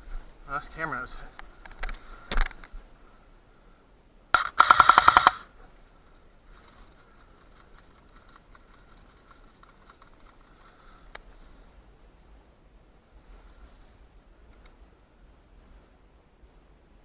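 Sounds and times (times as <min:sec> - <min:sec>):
airsoft gun full-auto burst: 0:04.4 - 0:05.5
faint ticks: 0:05.2 - 0:11.3, 0:14.5 - 0:14.8.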